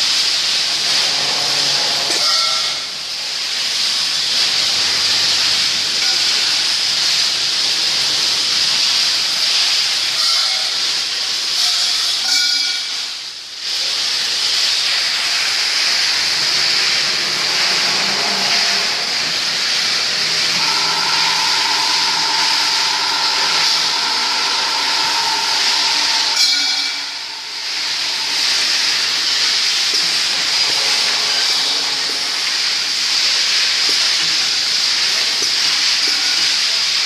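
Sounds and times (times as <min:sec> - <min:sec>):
saw blade cutting metal pipe: 0:01.1 - 0:02.9, 0:16.6 - 0:32.7
ringing tone: 0:20.6 - 0:29.2.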